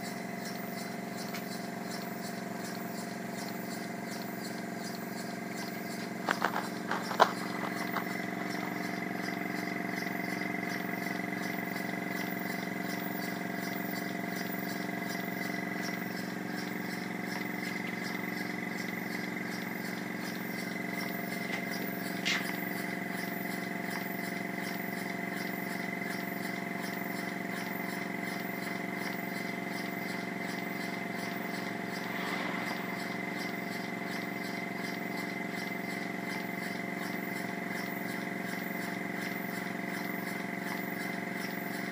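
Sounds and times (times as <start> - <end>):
beam engine running: 0.0 - 41.9
sharp click: 21.4 - 22.7.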